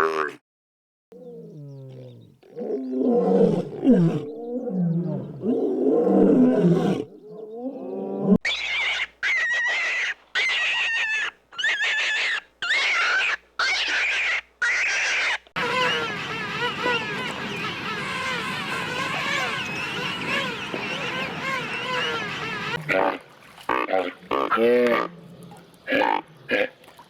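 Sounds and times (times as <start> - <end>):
big cat roaring and growling: 1.2 - 8.4
animal high raspy calls: 8.4 - 23.0.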